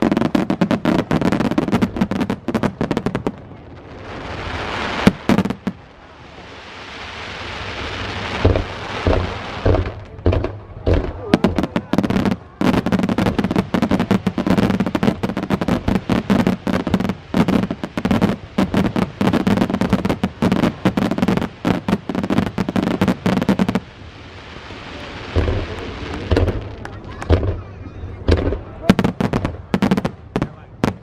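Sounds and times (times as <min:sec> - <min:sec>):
soft steady noise: 0:00.0 - 0:31.0
firework shells bursting: 0:08.4 - 0:23.8, 0:25.3 - 0:27.6.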